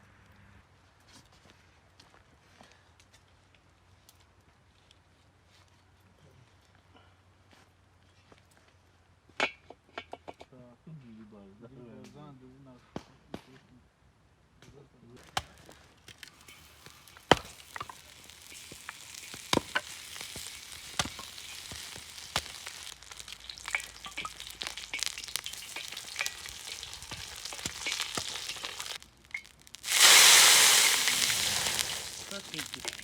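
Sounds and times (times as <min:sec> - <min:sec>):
meat sizzling in a pan: 0:16.1 - 0:33.0.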